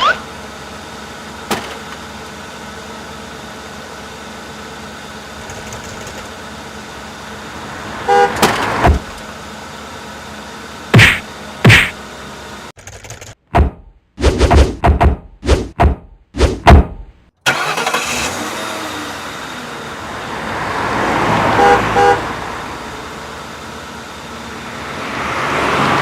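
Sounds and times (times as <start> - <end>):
cartoon horn toot: 8.1 - 8.4, 21.6 - 22.2
loud cartoon hits: 10.9 - 12.0, 13.5 - 17.1.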